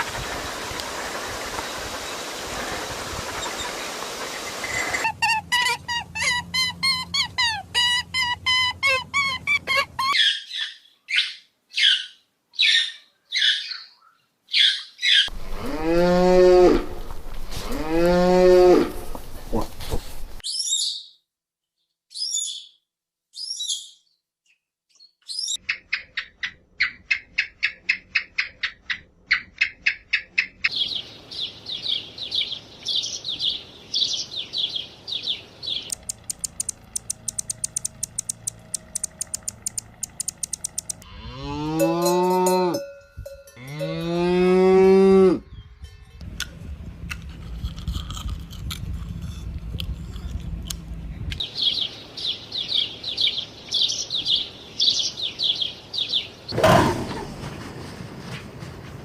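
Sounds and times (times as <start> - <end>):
cow mooing: 15.4 - 19.1, 41.0 - 42.8, 43.6 - 45.5
rapid trilling calls: 34.0 - 41.0
high-pitched chirps: 35.9 - 41.0
fast clicking runs: 35.9 - 41.1.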